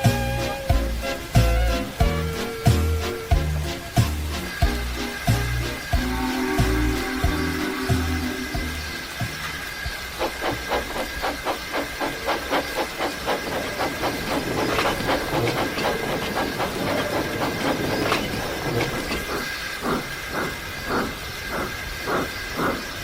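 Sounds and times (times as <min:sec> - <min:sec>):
steam hissing: 0:00.0 - 0:23.0
steam locomotive chuffing: 0:00.0 - 0:23.0
steady high tone: 0:05.8 - 0:10.1.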